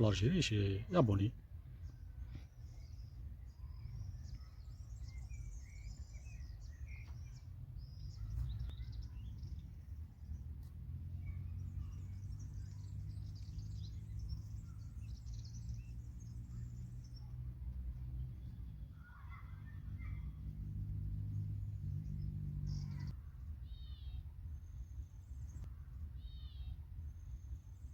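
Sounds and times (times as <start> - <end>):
small birds chirping: 0.0 - 27.9.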